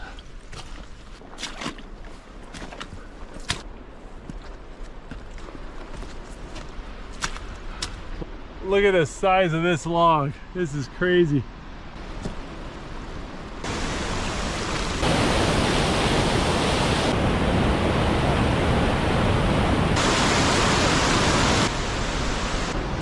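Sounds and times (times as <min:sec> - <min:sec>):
steady rushing noise: 0:12.0 - 0:23.0.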